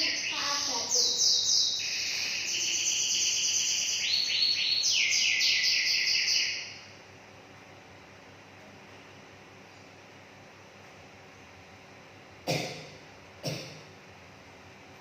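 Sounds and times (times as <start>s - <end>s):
bird chirping: 0.0s - 6.9s.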